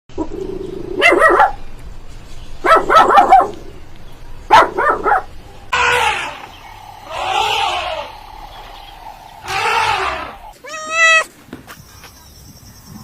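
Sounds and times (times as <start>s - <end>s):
dog barking: 1.0s - 1.6s, 2.6s - 3.6s, 4.5s - 5.3s.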